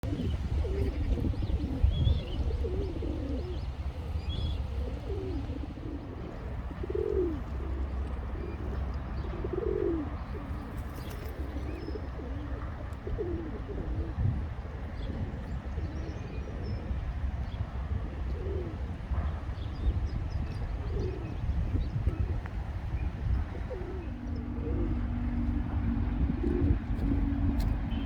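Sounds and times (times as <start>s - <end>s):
small birds chirping: 0.0s - 12.1s
pigeon cooing: 0.0s - 14.4s, 17.9s - 19.0s, 20.4s - 22.5s, 23.2s - 28.0s
steady low rumble: 18.8s - 28.0s.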